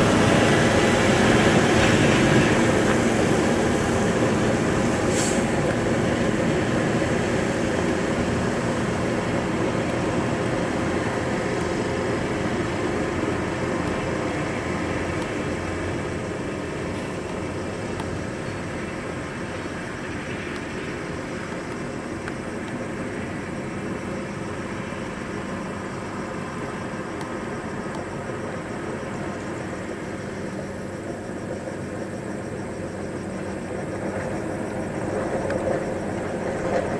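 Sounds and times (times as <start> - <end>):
heavy diesel engine drone: 0.0 - 36.9
road noise: 0.0 - 36.9.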